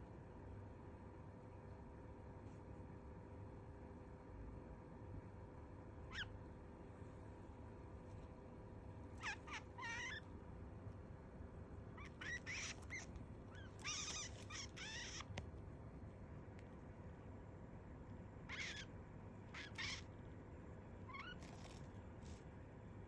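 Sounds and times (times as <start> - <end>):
finch calling: 9.2 - 10.3, 12.0 - 15.3, 18.5 - 18.9, 19.5 - 20.1.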